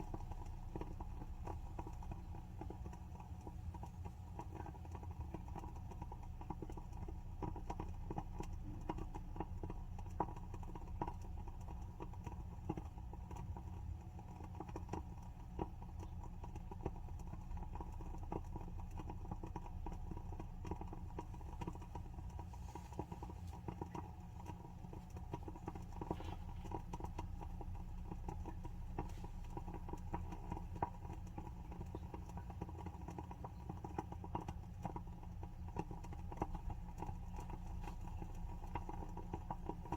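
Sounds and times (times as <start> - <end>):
candle wick crackling: 0.0 - 39.9.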